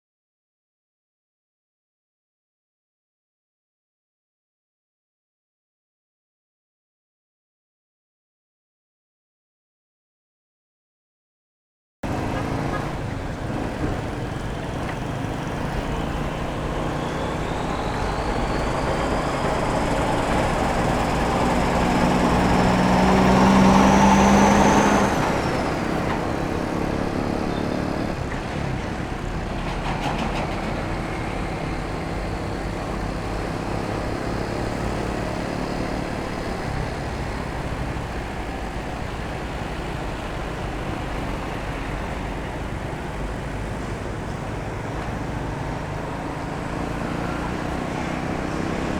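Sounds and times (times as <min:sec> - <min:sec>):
engine passing close: 0:12.0 - 0:48.9
motorcycle engine and road noise: 0:12.0 - 0:48.9.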